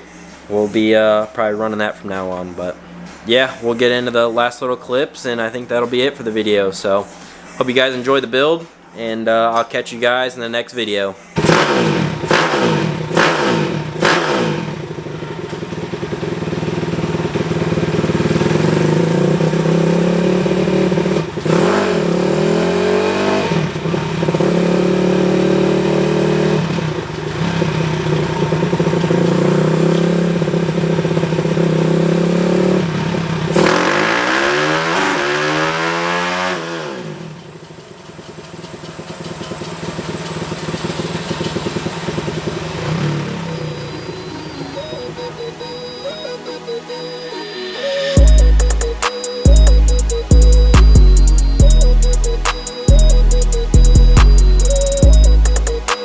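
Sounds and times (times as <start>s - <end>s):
pit bike engine revving: 11.4s - 46.2s, 48.2s - 56.0s.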